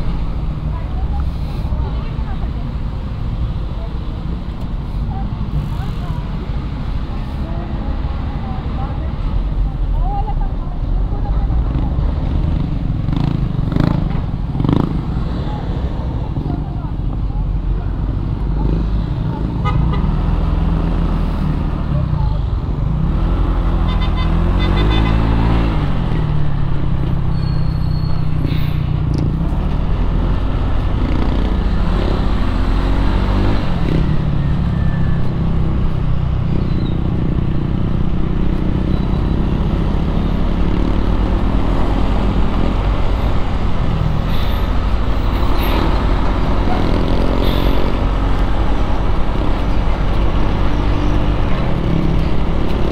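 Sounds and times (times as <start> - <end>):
road and wind noise: 0.0 - 52.9
surrounding traffic: 0.0 - 52.9
motorcycle engine revving: 11.6 - 15.5, 29.1 - 52.9.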